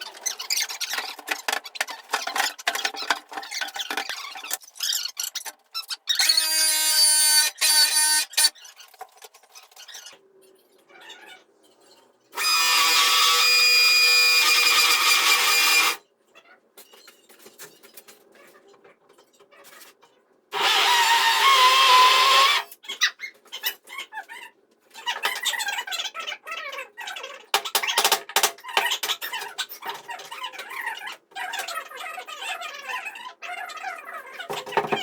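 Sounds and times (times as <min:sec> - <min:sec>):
power drill whining: 0:06.2 - 0:08.5, 0:12.4 - 0:16.0, 0:20.6 - 0:22.7.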